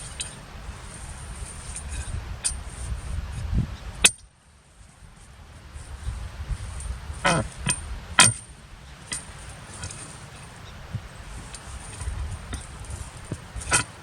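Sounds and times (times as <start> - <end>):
low engine rumble: 0.0 - 14.0
metal tool striking stony ground: 4.0 - 4.3, 7.2 - 8.5, 11.5 - 14.0.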